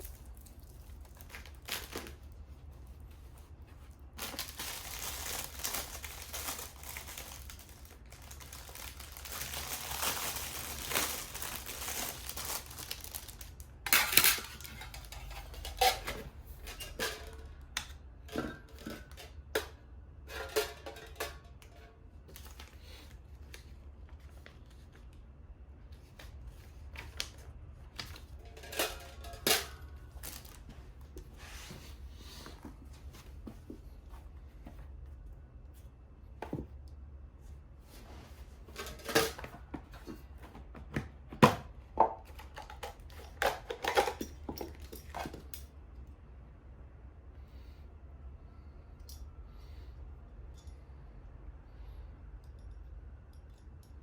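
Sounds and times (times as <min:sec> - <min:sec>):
packaging rustling and crinkling: 0:00.0 - 0:15.9, 0:29.9 - 0:31.9.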